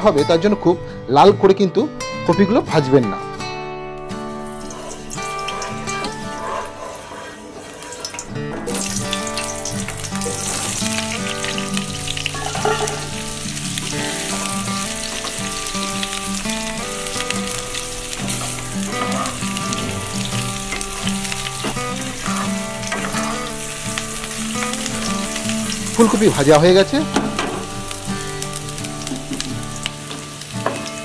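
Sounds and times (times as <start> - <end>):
background music: 0.0 - 31.0
vegetables sizzling in hot oil: 4.2 - 31.0
wooden spatula stirring: 4.7 - 8.3.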